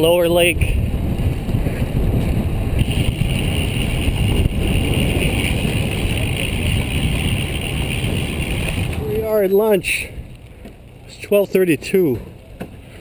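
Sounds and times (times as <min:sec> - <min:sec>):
wind buffeting microphone: 0:00.0 - 0:11.0
riding noise hiss: 0:02.7 - 0:13.0.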